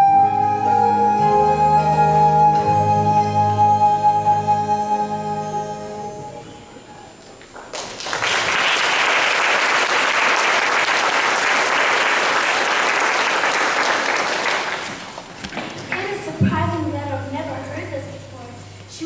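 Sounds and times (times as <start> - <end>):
audience applauding: 7.4 - 16.1.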